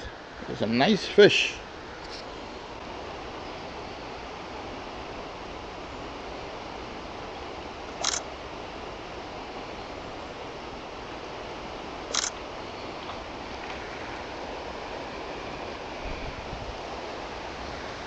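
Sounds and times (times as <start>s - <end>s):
river current rushing: 0.0s - 18.0s.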